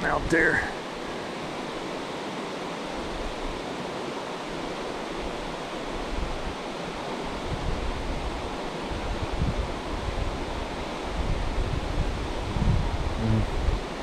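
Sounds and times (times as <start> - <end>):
creek water rushing: 0.0 - 14.0
wind buffeting microphone: 7.3 - 14.0.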